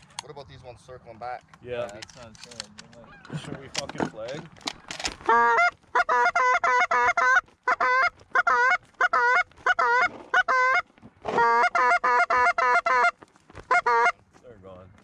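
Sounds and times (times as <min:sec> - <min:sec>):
goose call honks and clucks: 0:02.9 - 0:03.6, 0:04.8 - 0:14.2.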